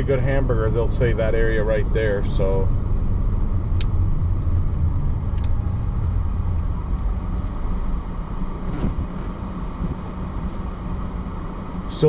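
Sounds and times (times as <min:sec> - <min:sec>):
engine and tyre rumble: 0:00.0 - 0:12.0.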